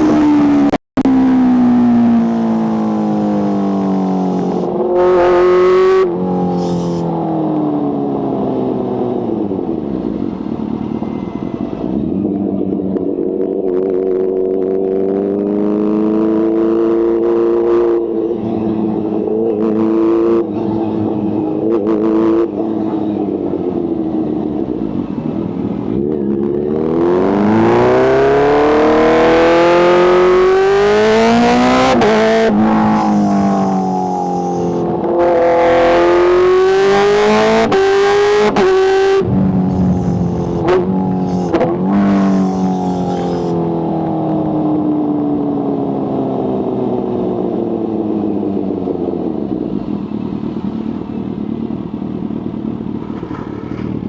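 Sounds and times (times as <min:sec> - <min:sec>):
motorcycle engine revving: 0:00.0 - 0:54.0
sharp exhaust cracks: 0:38.6 - 0:44.2.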